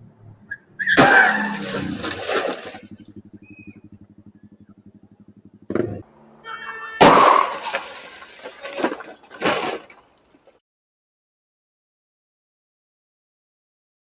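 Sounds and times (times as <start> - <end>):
vehicle engine running: 0.0 - 7.7
collision crash with crunching: 0.9 - 2.9, 7.0 - 10.1.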